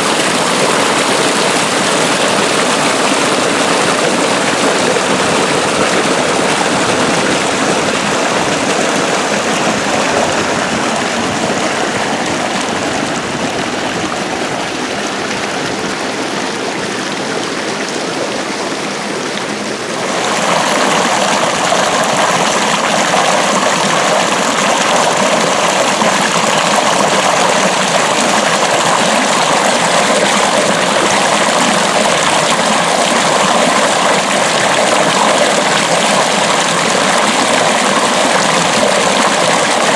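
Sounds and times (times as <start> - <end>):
water rushing along a ditch: 0.0 - 39.9.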